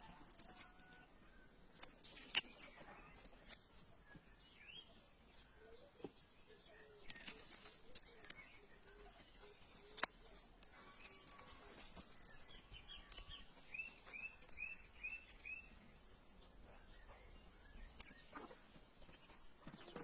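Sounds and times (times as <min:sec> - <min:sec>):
bird chirping: 0:02.1 - 0:20.0.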